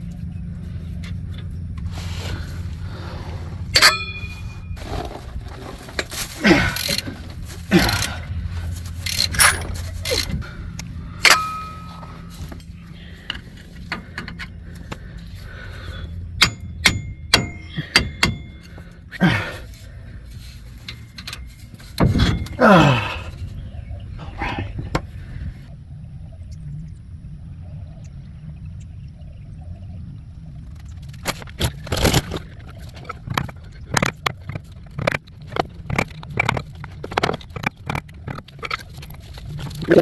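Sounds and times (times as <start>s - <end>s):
steady low hum: 0.0s - 40.0s
short ringing dings: 3.7s - 4.8s, 11.2s - 12.4s, 16.4s - 18.9s
metal tools clinking on metal: 3.7s - 23.5s.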